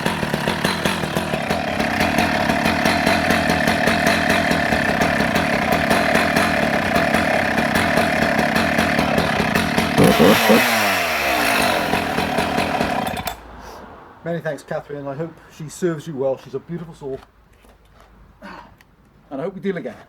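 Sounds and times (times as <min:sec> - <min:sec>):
chainsaw idling and revving: 0:00.0 - 0:13.5.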